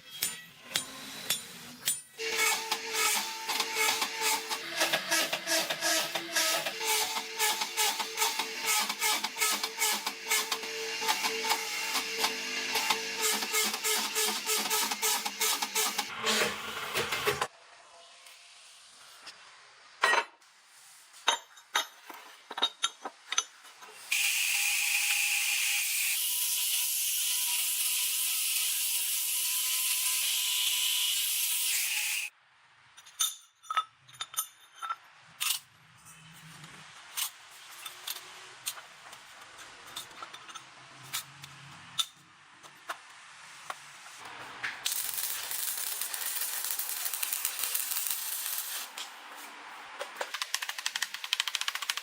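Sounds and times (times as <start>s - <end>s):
loud hiss of air blasting: 44.9s - 49.2s.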